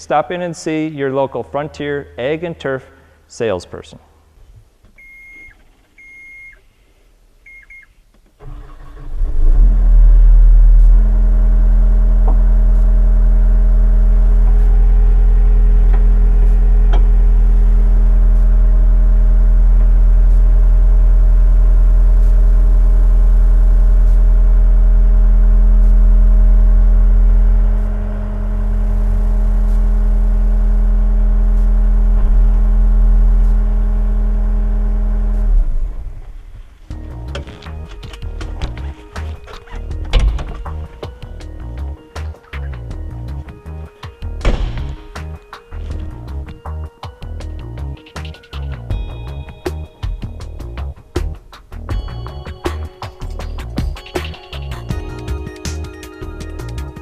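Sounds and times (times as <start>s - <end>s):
electronic beeps: 5.0s - 6.6s, 7.5s - 8.0s
diesel engine starting and running: 8.4s - 57.0s.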